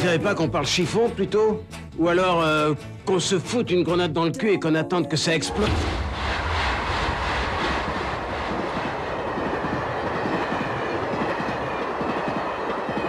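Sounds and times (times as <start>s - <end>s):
passenger train passing: 5.3s - 13.0s.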